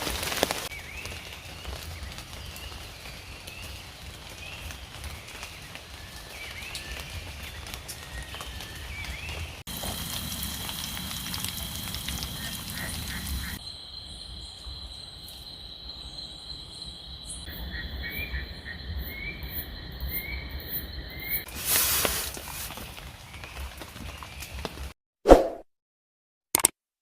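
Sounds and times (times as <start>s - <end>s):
rain hiss: 0.0s - 13.6s, 21.4s - 23.2s
high insect drone: 9.7s - 21.4s
frogs calling: 9.7s - 21.5s.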